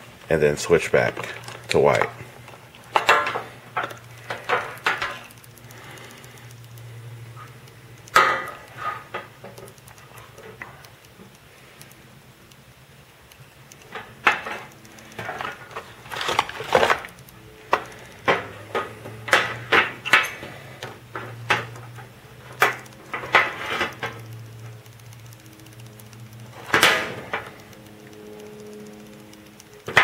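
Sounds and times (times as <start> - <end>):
packaging clicks knocks and rustles: 0.7 - 6.8, 13.7 - 30.0.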